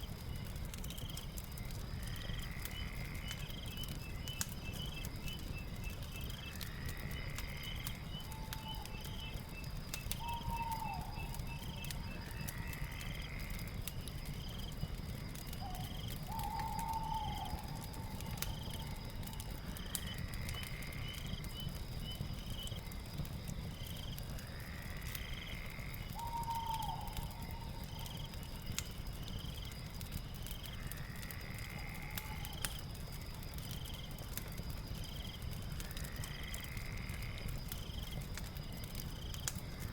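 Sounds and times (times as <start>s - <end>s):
fire crackling: 0.0s - 39.9s
lower animal call: 15.6s - 19.0s, 26.1s - 28.1s.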